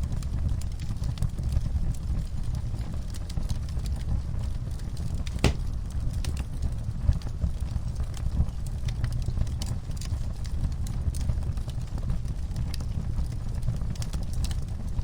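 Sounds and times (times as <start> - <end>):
wood fire crackling: 5.2 - 6.0
loud fire pop: 5.4 - 5.9
low rumble of flames: 5.4 - 15.0.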